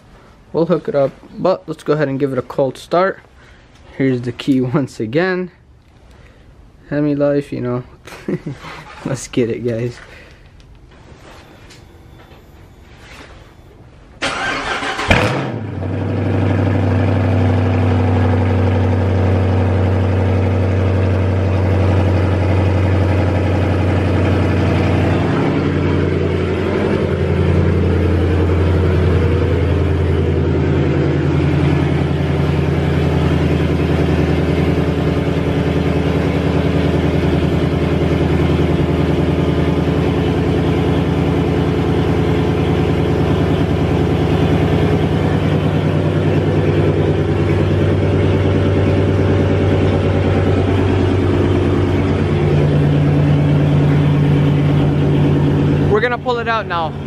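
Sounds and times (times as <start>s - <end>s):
starter motor cranking: 14.2s - 15.5s
engine idling: 14.2s - 57.0s.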